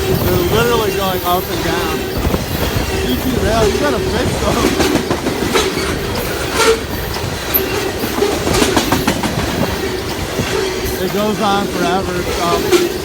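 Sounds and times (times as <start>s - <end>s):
train rumble: 0.0s - 13.0s
train wheels clacking on rail joints: 0.0s - 13.0s.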